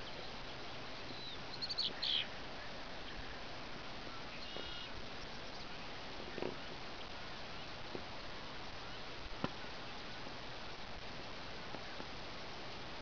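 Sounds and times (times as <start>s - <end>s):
birds chirping: 0.0s - 13.0s
steady background hiss: 0.0s - 13.0s.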